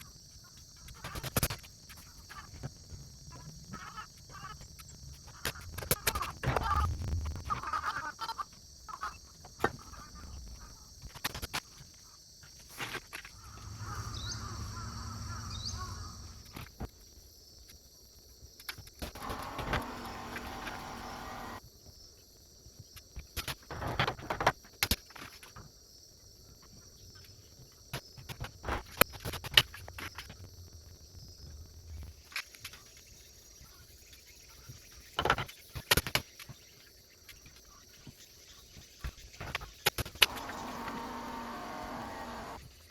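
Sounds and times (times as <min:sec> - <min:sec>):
bird chirps: 0:13.4 - 0:16.5
steady hum: 0:19.2 - 0:21.6, 0:40.2 - 0:42.6.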